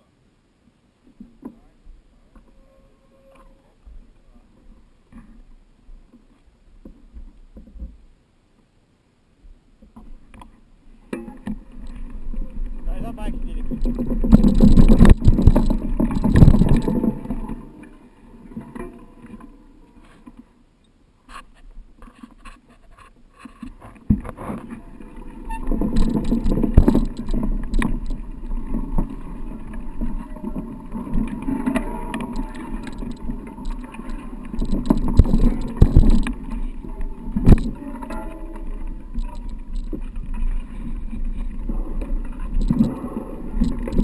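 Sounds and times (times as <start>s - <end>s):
bike rumbling over rough trail: 11.0s - 19.8s, 23.7s - 44.0s
knocks and rattles: 13.5s - 17.4s, 25.6s - 28.2s, 31.0s - 36.6s.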